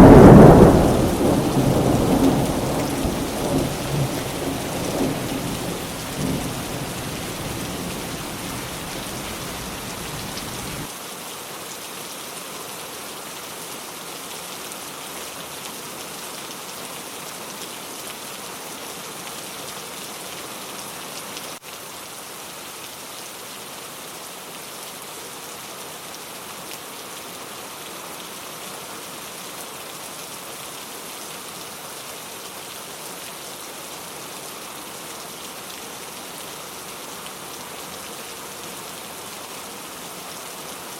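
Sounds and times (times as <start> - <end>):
thunder rumble: 0.0 - 10.9
steady rain falling: 0.0 - 40.9.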